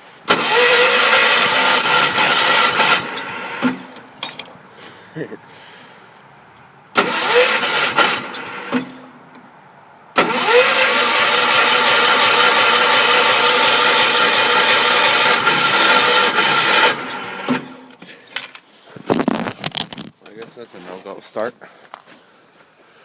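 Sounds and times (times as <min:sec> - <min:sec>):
engine starter cranking: 0:00.2 - 0:04.2, 0:06.9 - 0:09.2, 0:10.2 - 0:18.0.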